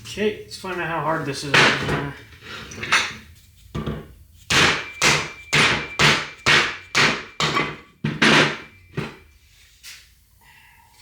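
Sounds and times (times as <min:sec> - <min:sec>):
hammer striking metal with ring: 0:04.5 - 0:09.2.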